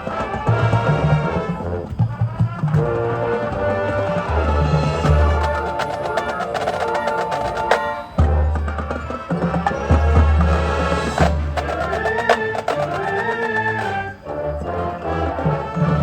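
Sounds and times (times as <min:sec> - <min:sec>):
marching band playing: 0:00.0 - 0:16.0
sharp clicky percussion strikes: 0:05.0 - 0:14.0.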